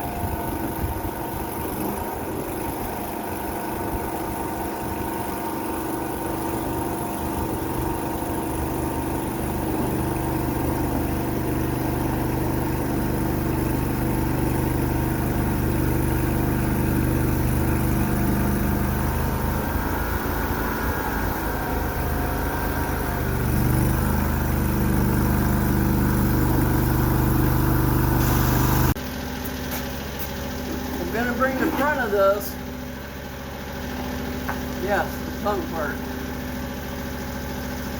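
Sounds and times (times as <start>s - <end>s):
skid steer engine running: 0.0s - 37.9s.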